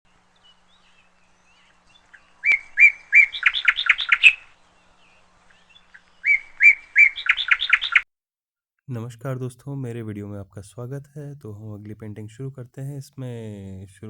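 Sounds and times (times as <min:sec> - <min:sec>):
songbird singing: 0:00.1 - 0:08.1.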